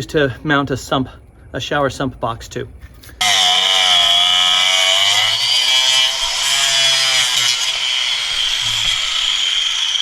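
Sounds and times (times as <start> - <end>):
electric power tool whining: 3.2 - 10.0.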